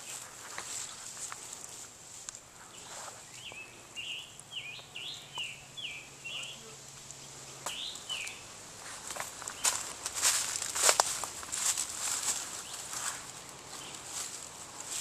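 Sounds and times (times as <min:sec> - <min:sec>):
rustling: 0:00.0 - 0:03.8, 0:06.4 - 0:15.0
songbird singing whistled notes: 0:02.7 - 0:06.6, 0:07.2 - 0:08.5.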